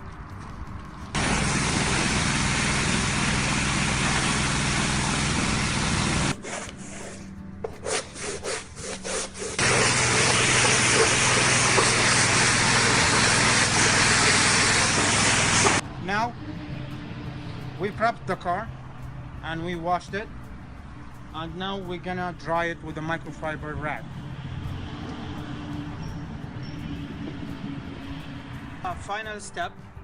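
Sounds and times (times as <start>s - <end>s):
pump hum: 1.2s - 6.4s, 9.6s - 15.8s
pressure washer spraying water: 1.2s - 7.0s, 8.2s - 15.8s.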